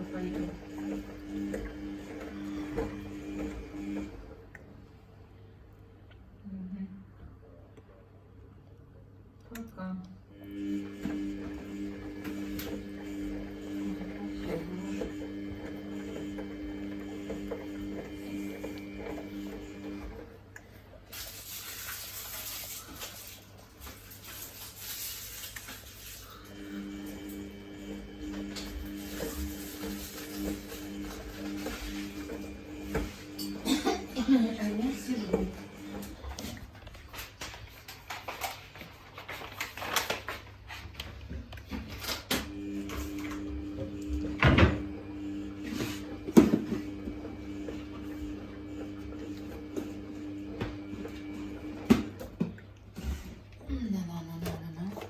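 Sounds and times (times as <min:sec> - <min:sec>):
washing machine motor whine: 0:00.0 - 0:04.9, 0:10.2 - 0:55.0
washing machine thumps: 0:44.4 - 0:44.9.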